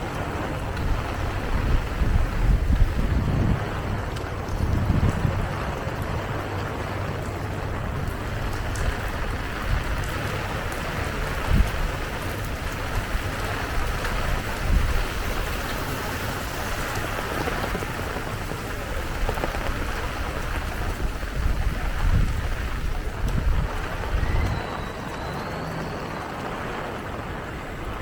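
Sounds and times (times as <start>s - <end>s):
rain falling and spattering: 0.0s - 28.0s.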